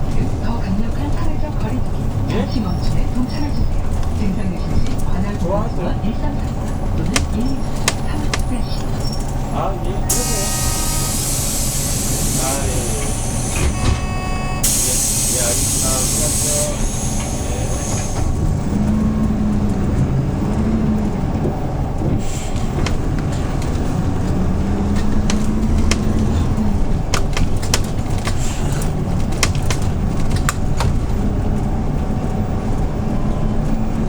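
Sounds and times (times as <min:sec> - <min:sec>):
bus engine drone: 0:00.0 - 0:34.0
sharp clicks and rattles: 0:22.6 - 0:32.3.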